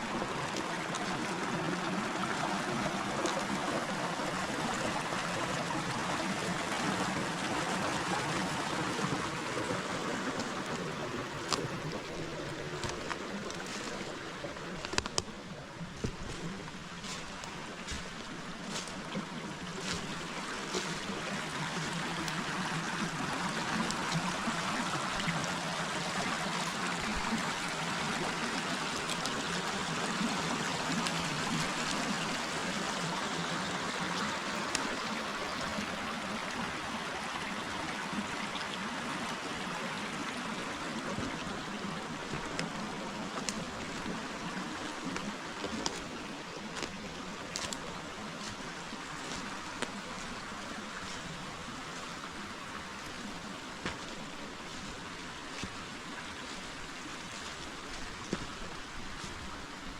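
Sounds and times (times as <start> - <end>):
river water rushing: 0.0 - 59.9
faint clicks: 10.3 - 15.4.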